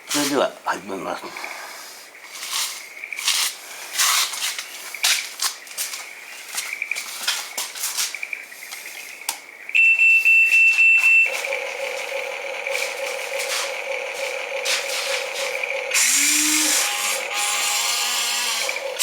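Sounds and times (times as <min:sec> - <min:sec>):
loud electronic beeping: 0:09.8 - 0:19.0
pulsing electronic tone: 0:11.2 - 0:19.0.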